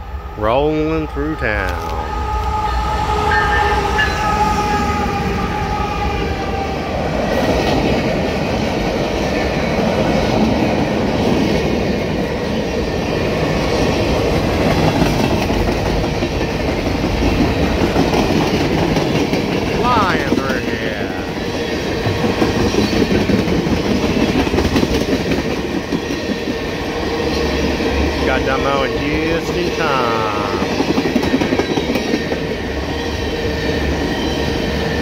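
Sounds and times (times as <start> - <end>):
locomotive pitched tone: 0.0 - 6.6.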